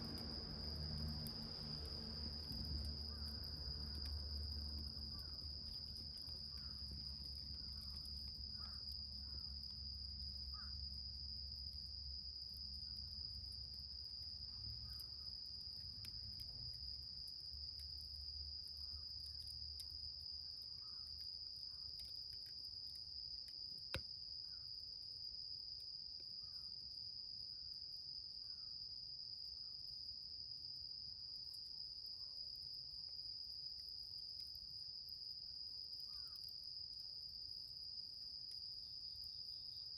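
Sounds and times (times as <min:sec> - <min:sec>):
low rumble: 0:00.0 - 0:06.5
insects trilling: 0:00.0 - 0:22.8, 0:32.0 - 0:39.9.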